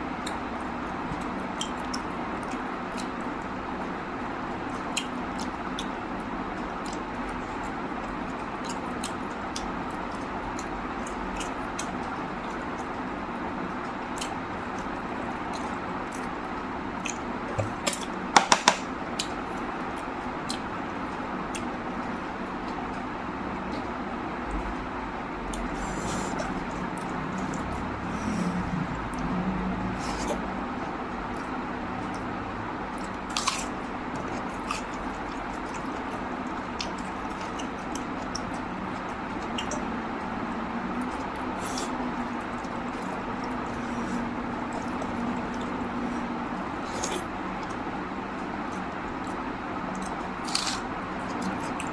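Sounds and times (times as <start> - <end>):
wet chewing clicks and smacks: 0.2 - 18.2, 19.1 - 28.1, 30.2 - 51.9
mouth clicks and smacks: 34.2 - 39.9.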